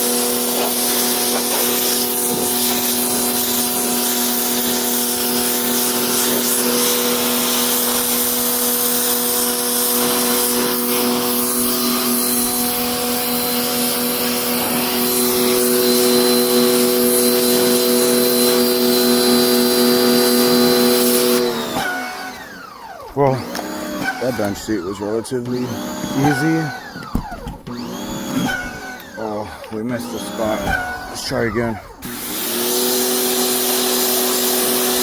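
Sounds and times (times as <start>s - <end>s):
water jet hissing: 0.0s - 21.4s
pressure washer motor whine: 0.0s - 35.0s.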